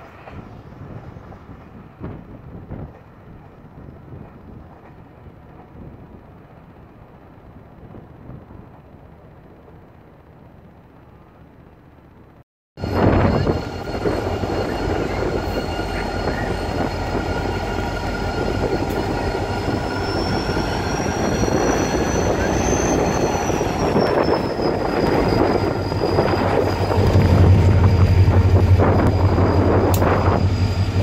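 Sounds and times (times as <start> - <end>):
train wheels on rails: 0.0 - 10.3, 12.8 - 31.0
diesel locomotive engine hum: 0.0 - 31.0
high thin whine: 12.8 - 31.0.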